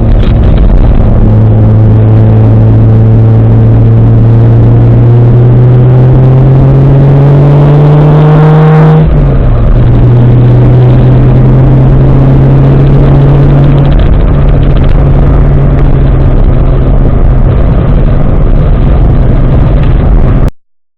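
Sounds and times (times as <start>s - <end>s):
turbocharged engine accelerating: 0.0s - 20.5s.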